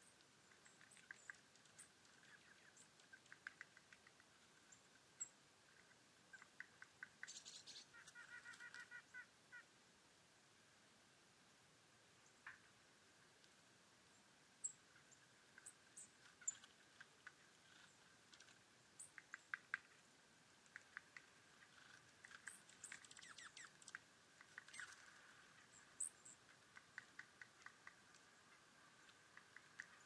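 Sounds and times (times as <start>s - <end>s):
small birds chirping: 0.0s - 9.6s, 14.0s - 30.0s
faint ticking and pattering: 0.4s - 4.9s, 20.6s - 30.0s.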